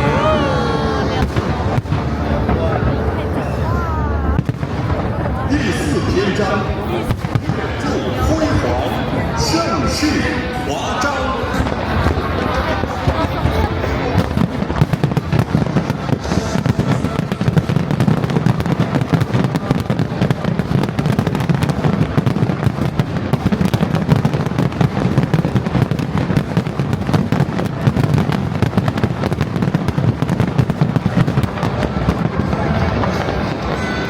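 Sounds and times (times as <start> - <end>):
deep firework booms: 0.0 - 3.3, 4.1 - 9.6, 11.4 - 34.0
firework bangs and crackling: 0.0 - 34.0.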